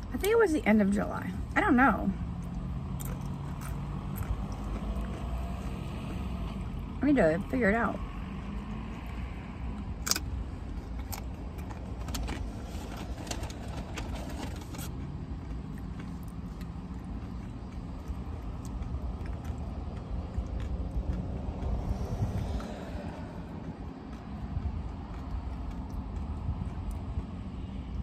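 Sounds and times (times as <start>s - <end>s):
soft chewing: 2.3s - 6.6s, 8.4s - 27.6s
crunching chips: 2.9s - 5.9s, 9.9s - 23.0s.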